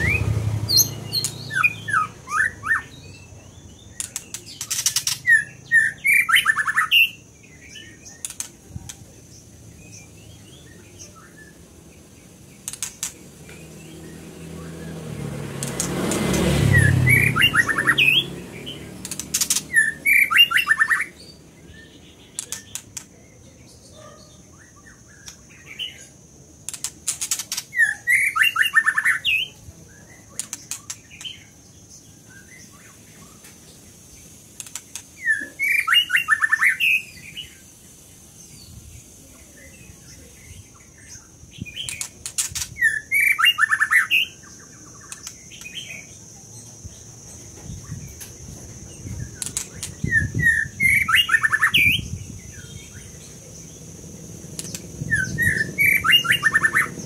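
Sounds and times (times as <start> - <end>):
bird singing rich phrases: 0.0 - 57.0
quieter bird calls: 0.0 - 57.0
sharp clicks: 4.0 - 5.2, 8.2 - 9.0, 12.6 - 13.6, 15.6 - 16.4, 19.0 - 19.8, 22.3 - 23.1, 26.6 - 27.7, 30.4 - 31.4, 34.6 - 35.1, 41.8 - 42.8, 45.0 - 45.8, 49.4 - 50.0, 54.5 - 54.9.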